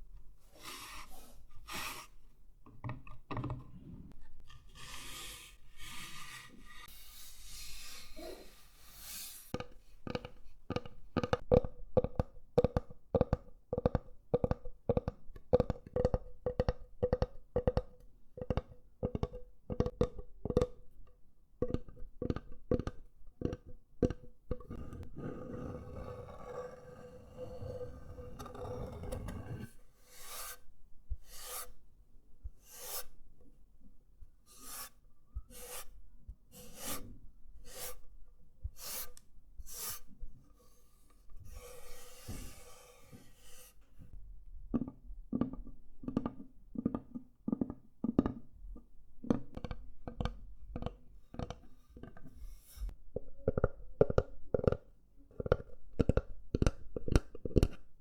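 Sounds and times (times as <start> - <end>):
rasping strokes on wood: 24.8 - 30.6, 31.3 - 31.8, 32.7 - 33.1, 34.5 - 35.9, 36.6 - 37.1.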